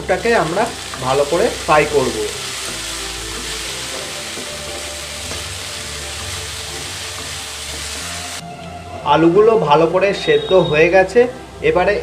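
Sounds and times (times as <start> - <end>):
potatoes sizzling in oil: 0.0 - 8.4.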